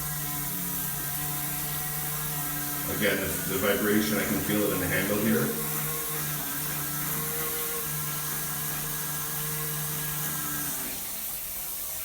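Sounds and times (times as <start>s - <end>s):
shower valve humming: 0.0s - 12.0s.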